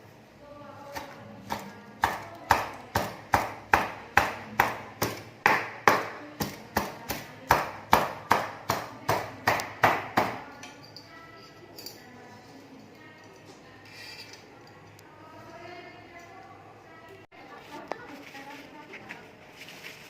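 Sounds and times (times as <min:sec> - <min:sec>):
knife chopping on cutting board: 0:00.9 - 0:10.4.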